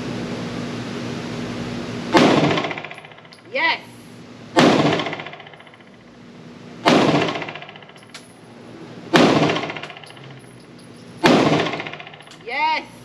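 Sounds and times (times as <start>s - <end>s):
pistol shots reverberating indoors: 2.1s - 3.3s, 4.6s - 5.9s, 6.8s - 8.2s, 9.1s - 10.2s, 11.2s - 12.4s.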